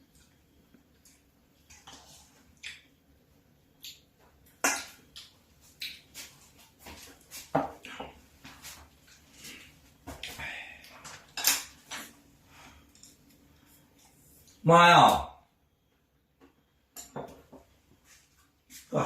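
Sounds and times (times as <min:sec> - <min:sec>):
dishes and utensils clinking: 0:11.1 - 0:11.8.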